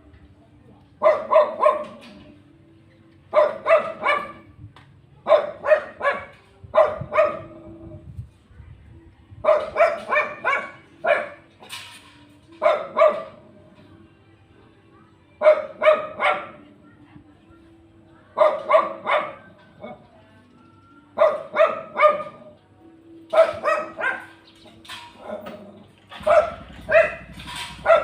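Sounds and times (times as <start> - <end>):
dog barking: 1.0 - 2.2, 3.3 - 4.5, 5.2 - 7.7, 9.4 - 11.5, 12.6 - 13.5, 15.4 - 16.7, 18.4 - 20.1, 21.2 - 22.6, 23.3 - 24.5, 25.1 - 28.0.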